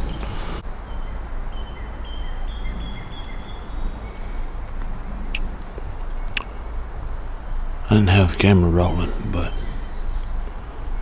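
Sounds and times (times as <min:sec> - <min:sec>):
bird singing high whistled notes: 0:00.1 - 0:05.4, 0:09.4 - 0:10.4
sharp clicks: 0:05.3 - 0:06.6.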